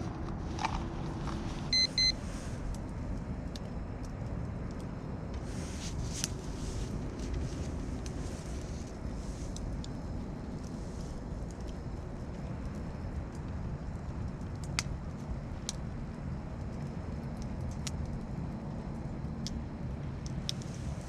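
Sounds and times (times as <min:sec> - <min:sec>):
steady low rumble: 0:00.0 - 0:21.0
high electronic beeps: 0:01.7 - 0:02.2.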